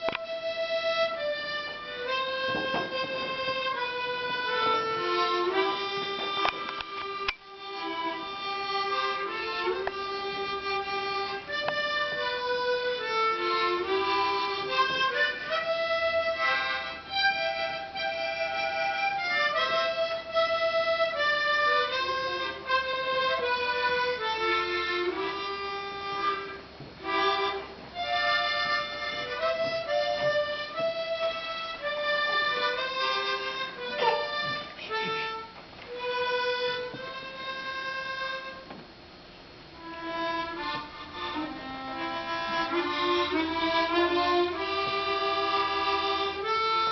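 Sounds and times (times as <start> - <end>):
harmonica melody: 0.0 - 46.9.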